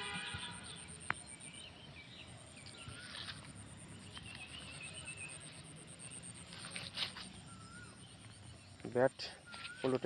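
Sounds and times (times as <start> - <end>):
insects chirping: 0.0 - 10.0
short bird chirps: 9.4 - 10.0
wavering bird call: 9.4 - 10.0.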